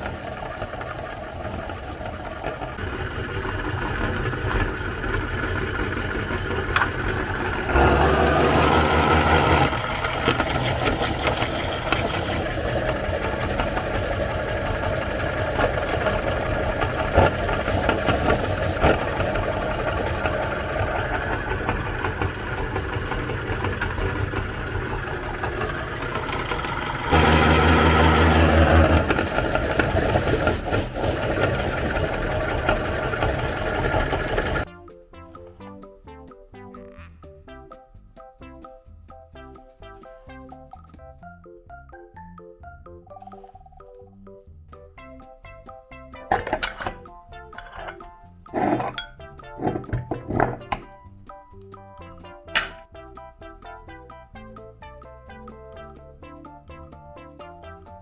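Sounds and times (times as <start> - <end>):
meat grinder motor running: 0.0 - 34.7.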